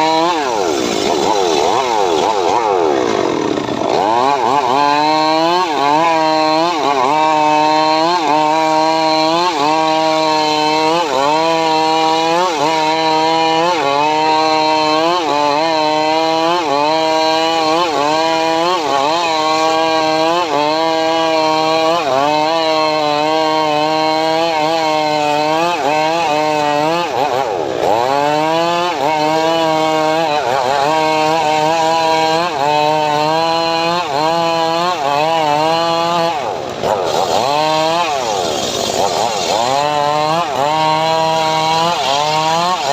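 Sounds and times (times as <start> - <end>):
sawmill engine under load: 0.0 - 42.9.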